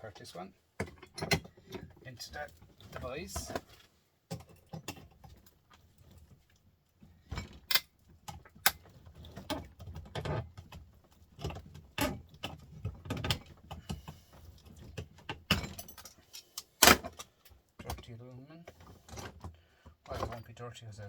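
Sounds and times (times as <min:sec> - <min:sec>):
metallic clinks and clatter: 0:15.5 - 0:16.6.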